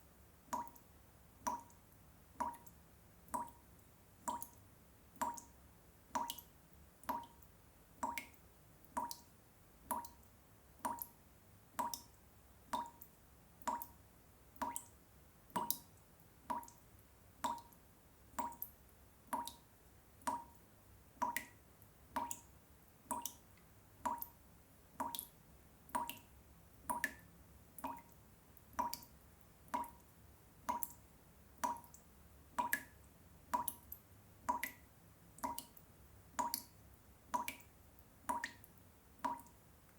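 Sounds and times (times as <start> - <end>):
water drops plopping: 2.4 - 2.7, 39.3 - 39.5.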